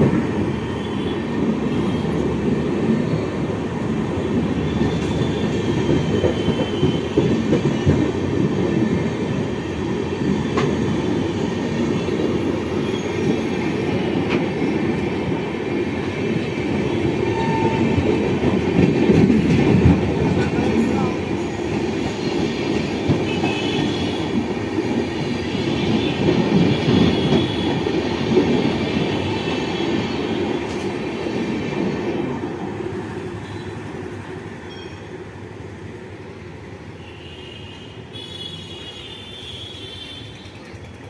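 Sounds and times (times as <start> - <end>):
train wheels rumbling on rails: 0.0 - 36.7, 39.4 - 41.0
clacks over rail joints: 4.7 - 9.1, 17.5 - 29.4.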